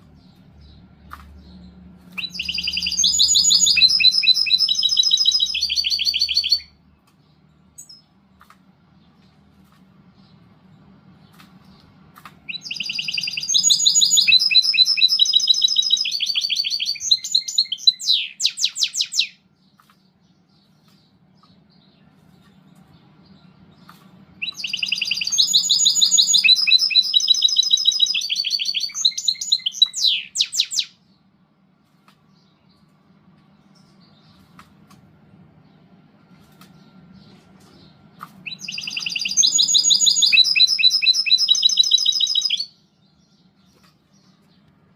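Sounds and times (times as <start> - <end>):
bird singing fast trills: 0.0 - 8.2, 12.5 - 22.4, 23.0 - 31.3, 36.7 - 44.6.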